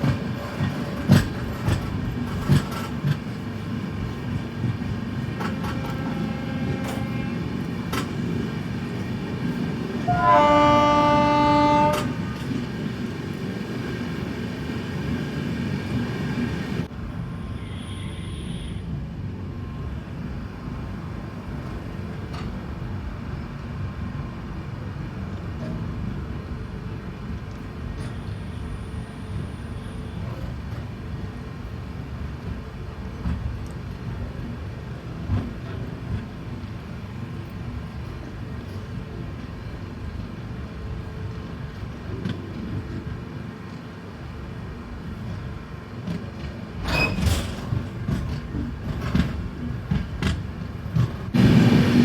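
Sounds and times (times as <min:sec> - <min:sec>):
train rumbling: 0:00.0 - 0:52.0
locomotive horn blast: 0:05.6 - 0:07.6, 0:10.0 - 0:12.5.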